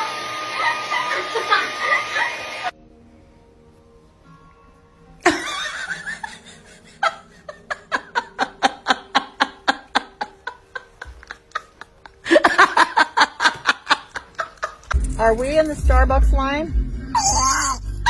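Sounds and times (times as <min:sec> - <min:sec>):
person laughing hard: 0:00.6 - 0:02.7, 0:05.2 - 0:15.0.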